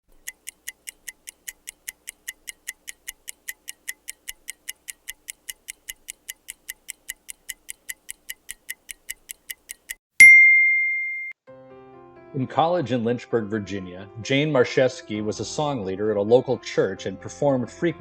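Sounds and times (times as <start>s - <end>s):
microwave timer ticking: 0.0s - 10.0s.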